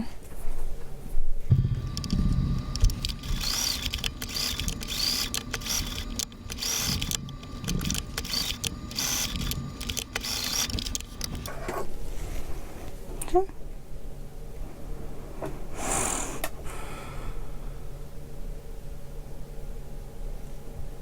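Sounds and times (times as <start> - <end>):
motor whine: 1.5 - 11.6
sewing machine stitching: 1.5 - 11.6.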